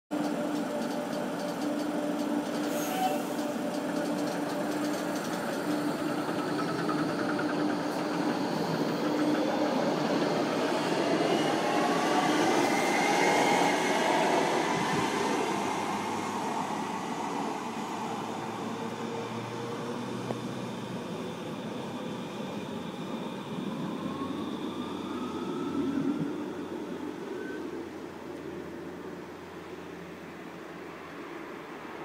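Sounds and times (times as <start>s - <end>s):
metro train hum: 0.1s - 32.0s
electric traction motors whining: 0.2s - 16.9s.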